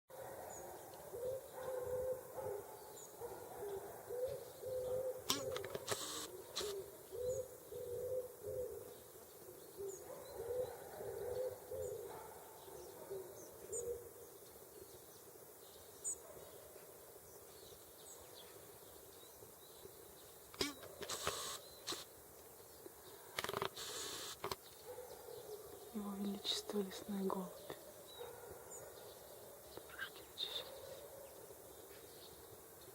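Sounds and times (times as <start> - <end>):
small birds chirping: 0.5 - 8.1, 8.7 - 32.9
dove cooing: 1.1 - 2.6, 3.6 - 8.9, 9.8 - 12.2
sharp clicks: 5.3 - 6.8, 20.5 - 22.1, 23.4 - 24.6.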